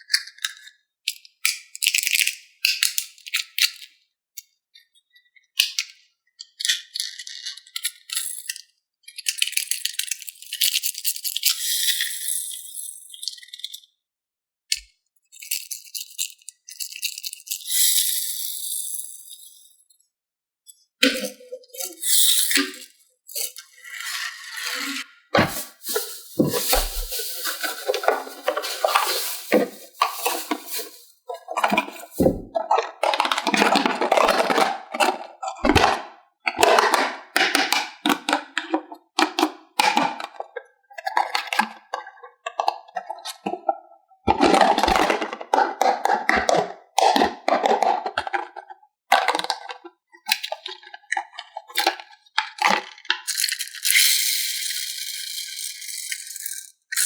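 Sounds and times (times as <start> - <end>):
packaging rustling: 25.4 - 32.4
plastic parts clicking and rattling: 25.4 - 35.0.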